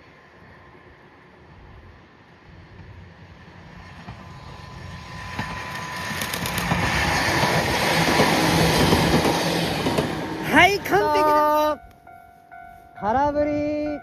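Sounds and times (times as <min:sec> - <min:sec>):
electric train passing: 0:00.0 - 0:14.0
wheels clicking over rail joints: 0:05.2 - 0:12.0.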